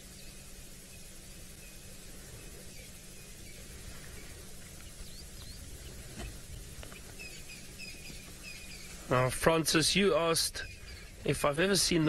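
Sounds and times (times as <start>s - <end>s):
low background rumble: 0.0s - 12.0s
high bird chirps: 0.2s - 9.0s.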